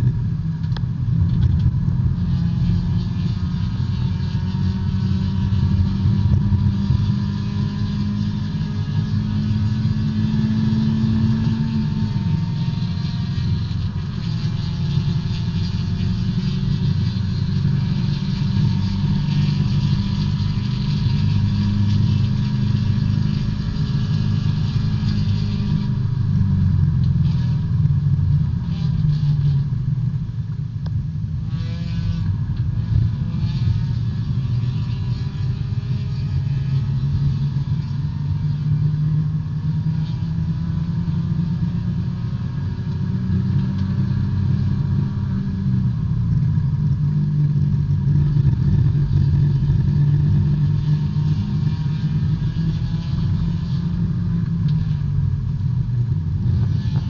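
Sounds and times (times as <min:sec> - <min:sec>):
race car engine running hard: 0:00.0 - 0:57.0.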